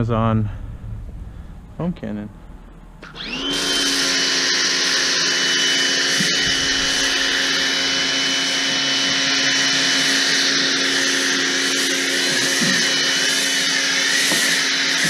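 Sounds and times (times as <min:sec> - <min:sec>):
pressure washer motor humming: 0:03.0 - 0:15.0
foam cannon spraying hiss: 0:09.5 - 0:15.0.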